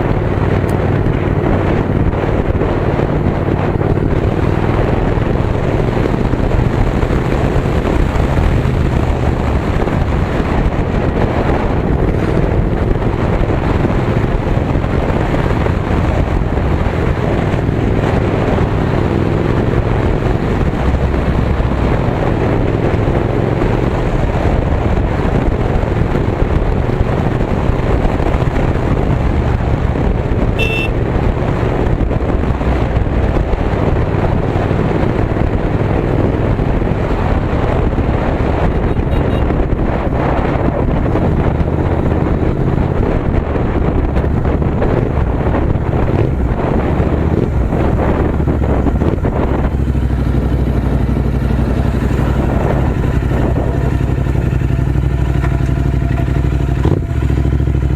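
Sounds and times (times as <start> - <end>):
motorcycle engine running: 0.0 - 57.9
wind noise on microphone: 0.0 - 57.9
high beep: 30.6 - 30.9.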